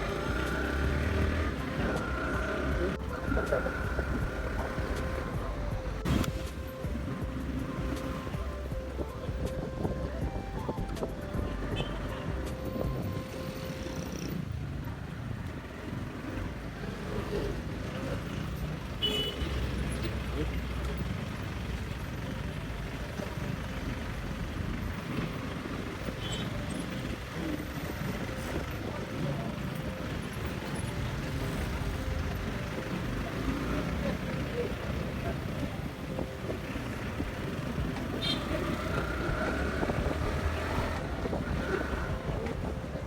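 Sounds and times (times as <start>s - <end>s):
motorcycle engine running: 21.1s - 43.0s
wind noise on microphone: 39.2s - 43.0s.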